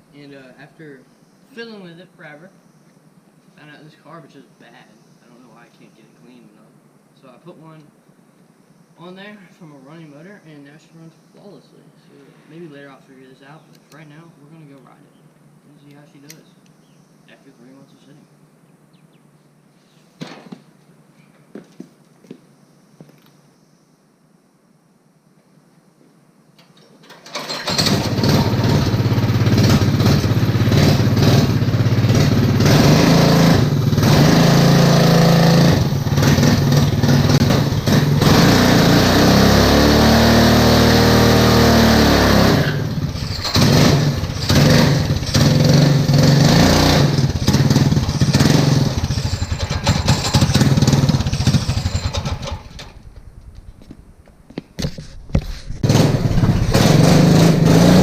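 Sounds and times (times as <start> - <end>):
lawn mower engine revving: 27.1 - 53.1, 55.8 - 58.0.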